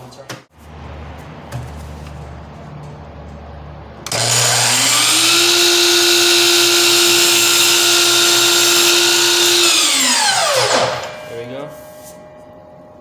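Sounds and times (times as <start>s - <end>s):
miter saw motor whining: 4.1s - 11.3s.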